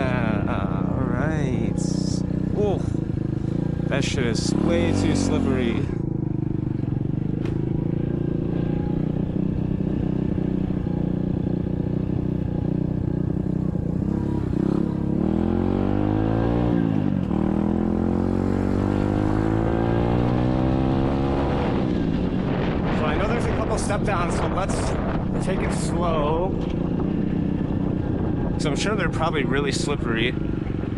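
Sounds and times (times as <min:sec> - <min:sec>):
dirt bike engine revving: 0:00.0 - 0:11.0, 0:13.8 - 0:23.7.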